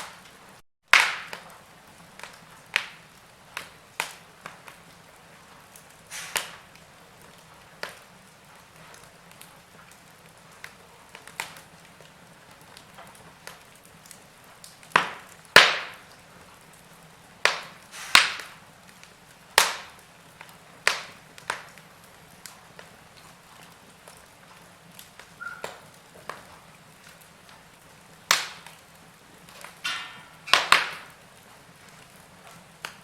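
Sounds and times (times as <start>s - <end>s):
log fire crackling: 0.0s - 33.0s.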